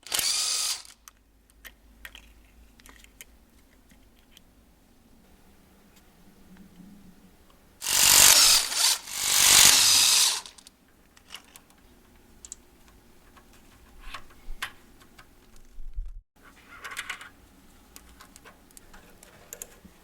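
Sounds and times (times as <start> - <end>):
power tool running: 0.0 - 0.9, 7.8 - 10.6.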